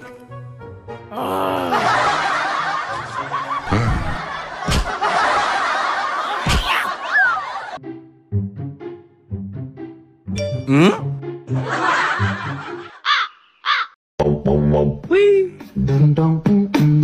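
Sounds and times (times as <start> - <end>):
crowd laughing: 1.3 - 7.8, 11.5 - 13.2.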